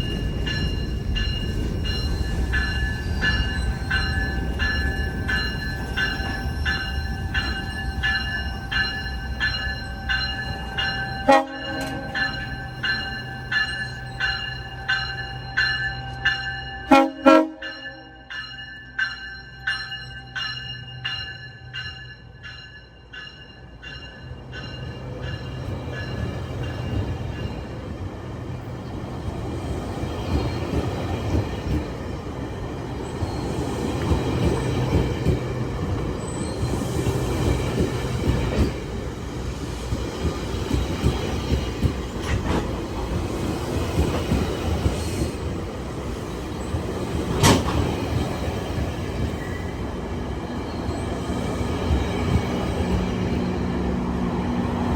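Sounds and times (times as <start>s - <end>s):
crossing bell ringing: 0.0s - 27.9s
train rumble and wheel noise: 0.0s - 54.9s.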